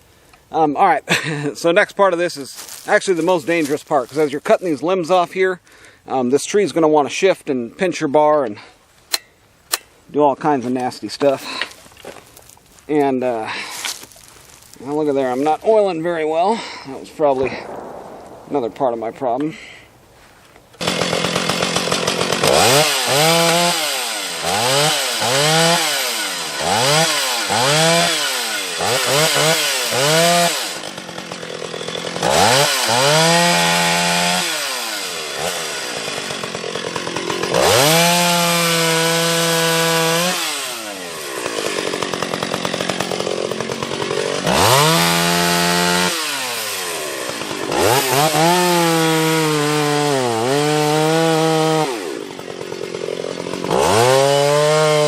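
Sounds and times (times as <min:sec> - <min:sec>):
chainsaw revving and cutting: 0:20.8 - 0:55.0.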